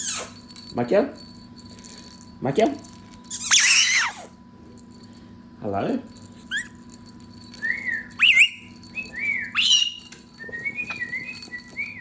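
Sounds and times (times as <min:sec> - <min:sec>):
parrot squawking: 0:00.0 - 0:00.4, 0:03.3 - 0:04.3, 0:08.2 - 0:08.6, 0:09.3 - 0:10.1
parrot whistling and chirping: 0:00.0 - 0:00.4, 0:03.3 - 0:04.3, 0:06.5 - 0:06.8, 0:07.6 - 0:12.0.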